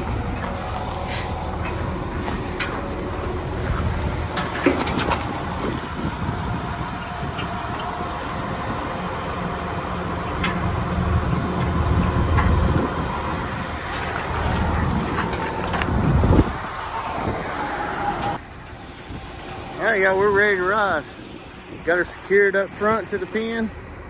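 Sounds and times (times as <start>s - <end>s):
engine running: 0.0s - 24.0s
metallic clanks: 0.2s - 6.2s, 7.0s - 16.0s.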